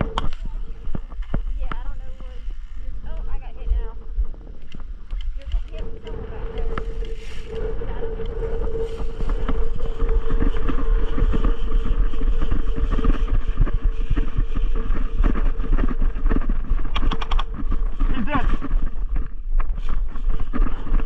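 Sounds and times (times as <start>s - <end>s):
steady hum: 0.0s - 21.0s
wind buffeting microphone: 0.0s - 21.0s
sharp clicks: 4.5s - 8.4s, 16.8s - 17.7s.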